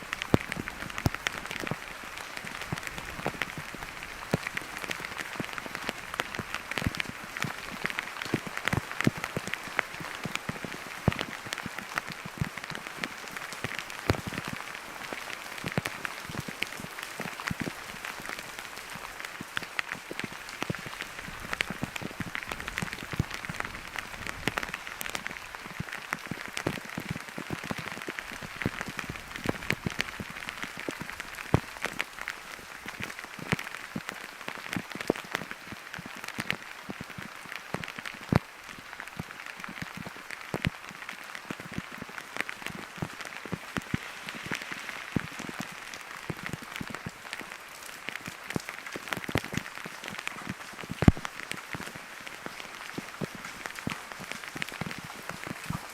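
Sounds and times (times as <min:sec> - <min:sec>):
raindrops ticking on surface: 0:00.0 - 0:55.9
steady rain falling: 0:00.0 - 0:55.9.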